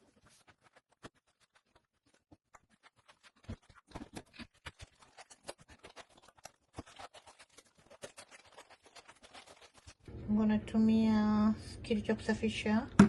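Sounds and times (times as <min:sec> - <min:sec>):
cloth scrubbing a surface: 0:04.8 - 0:10.0.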